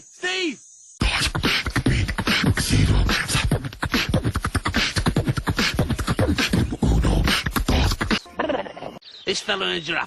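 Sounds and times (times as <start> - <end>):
beatboxing: 1.0 - 8.2.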